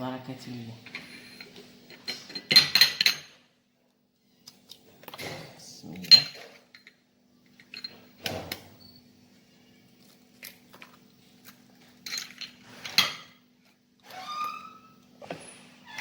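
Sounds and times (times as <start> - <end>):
dishes and utensils clattering: 0.8 - 3.5, 5.2 - 8.8, 11.9 - 13.4.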